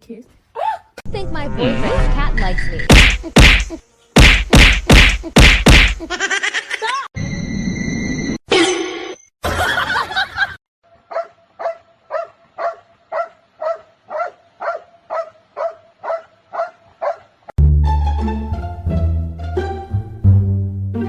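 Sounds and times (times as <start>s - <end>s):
dog barking: 11.1s - 17.3s.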